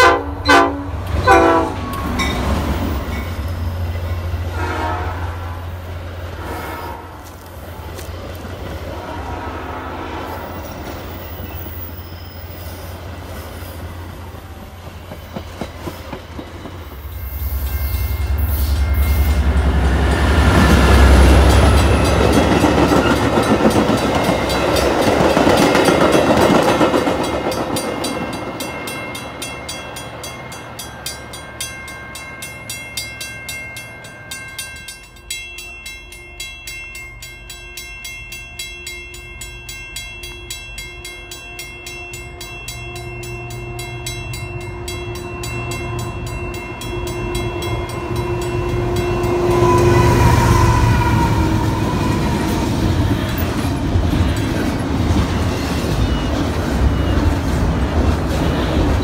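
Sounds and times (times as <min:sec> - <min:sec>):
grade crossing bell ringing: 0:00.0 - 0:04.5, 0:17.0 - 0:57.5
train passing: 0:00.0 - 0:59.0
train wheel clacks: 0:14.6 - 0:17.1, 0:18.3 - 0:31.5.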